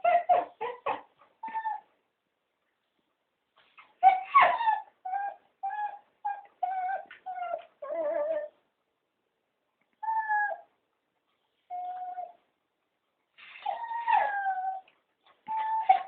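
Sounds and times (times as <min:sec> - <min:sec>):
dogs whining: 0:00.0 - 0:01.9, 0:03.8 - 0:08.6, 0:10.0 - 0:10.7, 0:11.6 - 0:12.5, 0:13.4 - 0:16.0.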